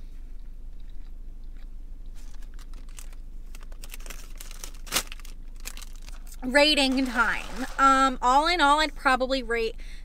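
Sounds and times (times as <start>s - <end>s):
person chewing food: 0.0s - 3.7s.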